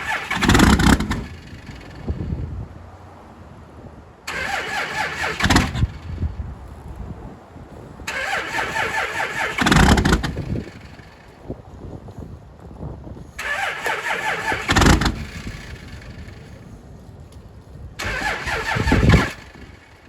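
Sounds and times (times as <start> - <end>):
engine starter cranking: 0.0 - 2.1, 4.3 - 6.2, 8.1 - 11.3, 13.4 - 16.6, 18.0 - 20.0
engine low burst: 0.0 - 3.2, 4.3 - 11.8, 13.3 - 20.0.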